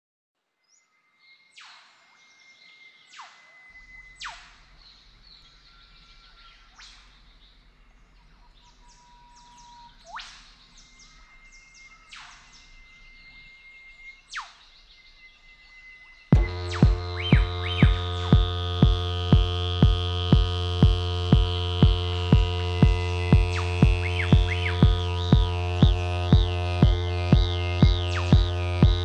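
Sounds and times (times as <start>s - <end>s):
sharp downward-swooping bird calls: 3.1s - 7.3s, 8.7s - 29.0s
faint low hum: 16.3s - 29.0s.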